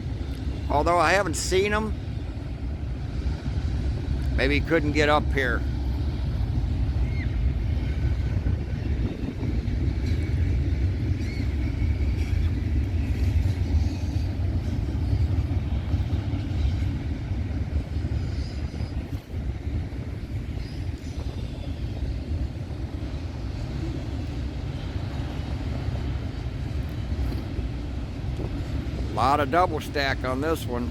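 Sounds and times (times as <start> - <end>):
freight train wheels rumbling: 0.0 - 30.9.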